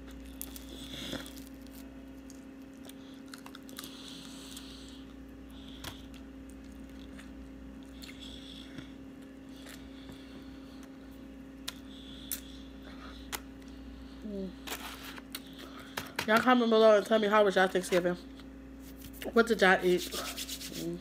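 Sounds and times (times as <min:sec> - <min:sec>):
person chewing wetly: 0:00.0 - 0:11.0.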